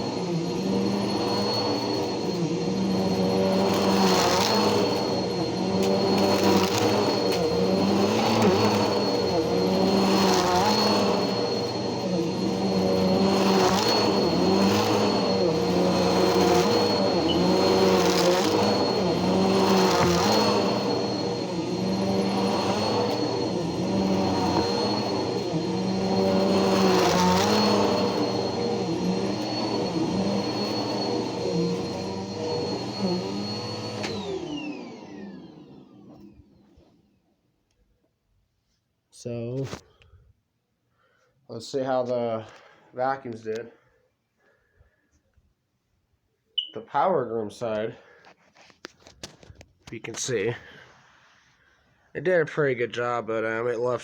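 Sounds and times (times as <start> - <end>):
vacuum cleaner motor whining: 0.0 - 37.2.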